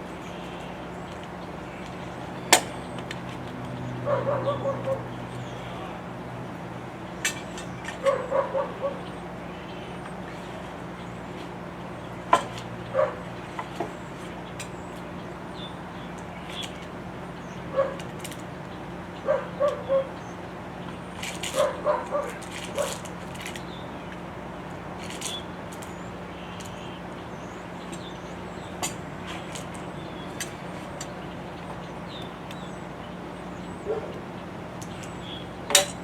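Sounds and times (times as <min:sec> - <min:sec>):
dog yipping: 0:04.0 - 0:05.1, 0:08.0 - 0:09.1, 0:13.0 - 0:13.2, 0:17.8 - 0:18.0, 0:19.2 - 0:20.1, 0:21.6 - 0:23.0.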